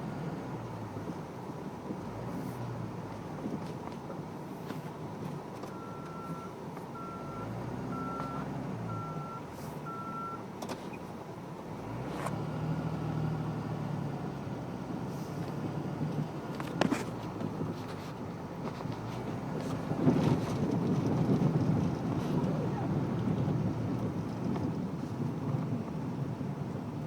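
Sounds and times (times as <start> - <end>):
diesel truck engine running: 0.0 - 27.0
short reversing alarm beeps: 5.8 - 10.4.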